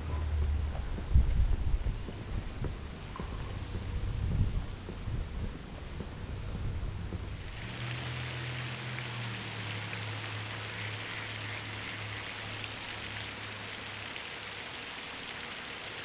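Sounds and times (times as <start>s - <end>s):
water hissing: 7.3s - 16.0s.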